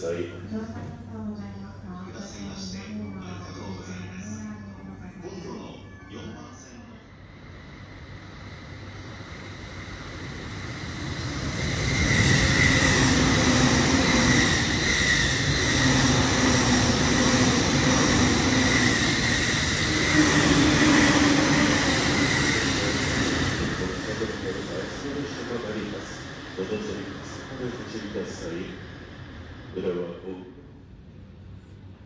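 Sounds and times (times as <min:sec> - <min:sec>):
train wheels rumbling on rails: 0:08.6 - 0:30.1.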